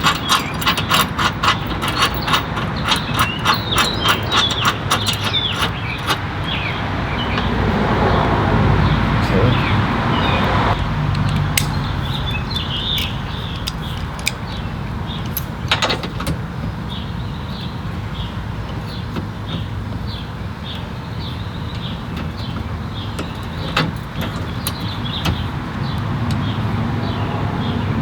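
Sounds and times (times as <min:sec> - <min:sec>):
sharp clicks: 0:11.1 - 0:11.9.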